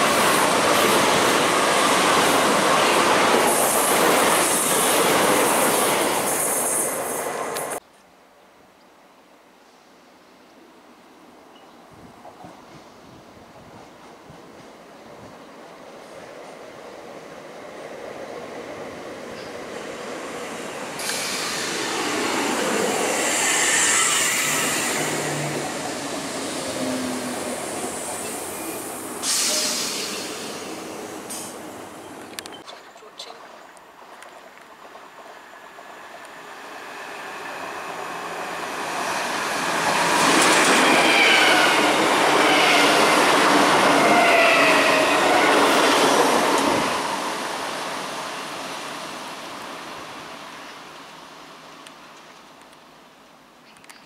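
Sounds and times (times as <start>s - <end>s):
train wheel and rail noise: 0.0s - 7.8s, 11.5s - 32.7s, 34.7s - 52.9s
rail clatter: 39.6s - 43.5s.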